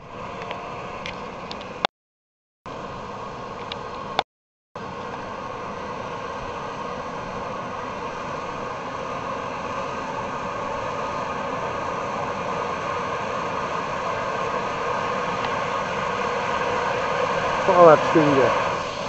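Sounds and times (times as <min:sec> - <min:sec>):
helicopter engines and rotor: 0:04.8 - 0:19.0.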